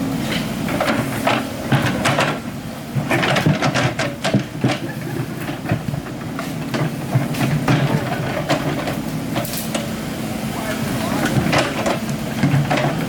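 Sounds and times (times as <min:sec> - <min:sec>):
excavator diesel engine running: 0:00.0 - 0:13.0
metallic clanks and knocks: 0:03.0 - 0:09.9, 0:11.2 - 0:13.0.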